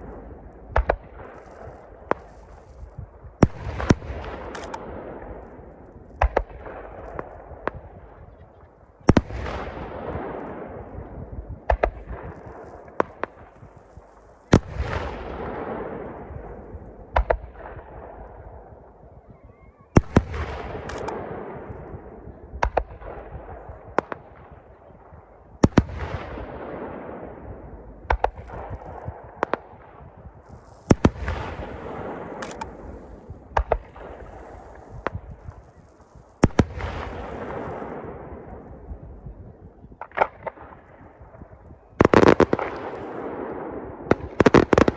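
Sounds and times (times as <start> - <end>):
fireworks bangs with echo: 0.0 - 19.0, 20.0 - 44.9
fireworks crackling hiss: 30.4 - 31.0.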